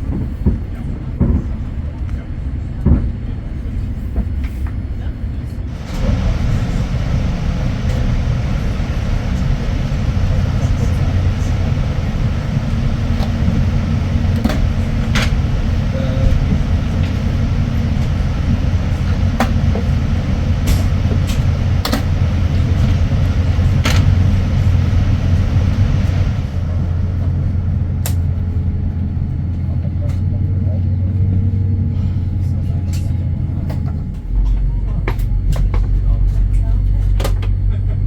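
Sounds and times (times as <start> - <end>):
airliner cabin rumble and hum: 0.0 - 38.0.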